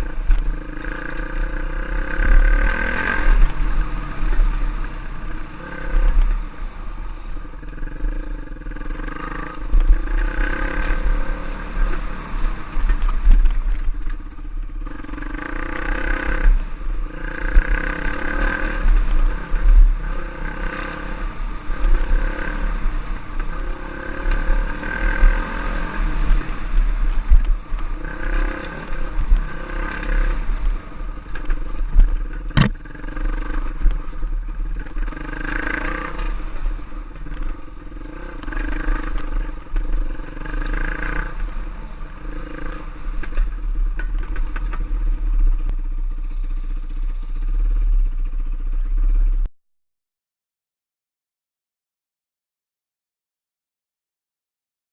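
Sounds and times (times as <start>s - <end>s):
trail bike engine revving: 0.0s - 49.5s
sharp knock: 32.6s - 32.8s.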